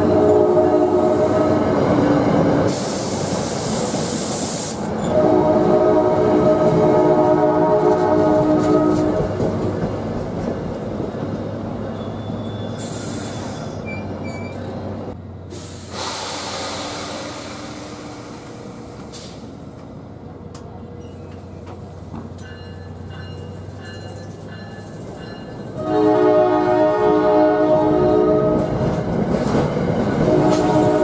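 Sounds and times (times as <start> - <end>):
locomotive air horn: 0.0 - 1.7, 5.0 - 9.2, 25.8 - 28.7, 30.2 - 31.0
train wheels rumbling on rails: 0.0 - 31.0
hiss: 2.7 - 4.9, 12.7 - 13.8, 15.5 - 19.6.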